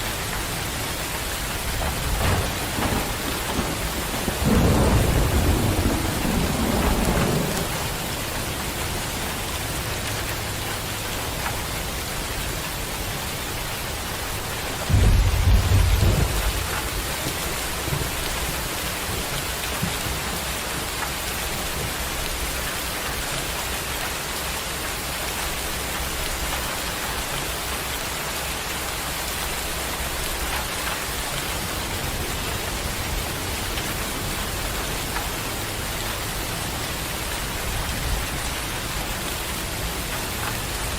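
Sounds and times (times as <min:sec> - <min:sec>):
heavy rain: 0:00.0 - 0:40.9
thunder rumbling: 0:00.2 - 0:09.6, 0:14.3 - 0:20.8.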